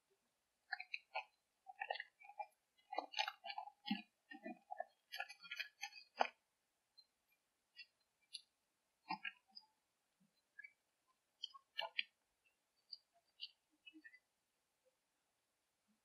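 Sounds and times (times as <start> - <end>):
munching crunches and clicks: 0.7 - 6.4.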